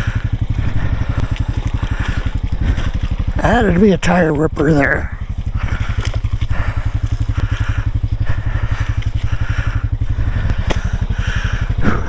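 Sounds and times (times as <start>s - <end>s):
off-road vehicle engine running: 0.0s - 12.0s
scratchy crunching: 5.2s - 12.0s.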